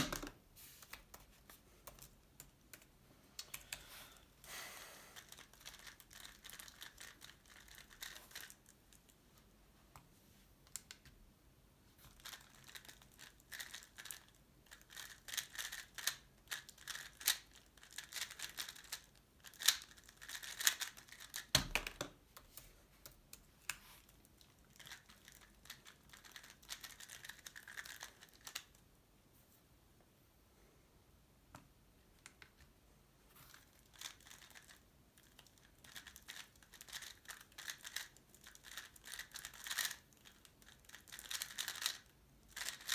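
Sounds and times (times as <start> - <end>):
puzzle cube plastic clicking: 12.2 - 28.8, 33.9 - 42.9.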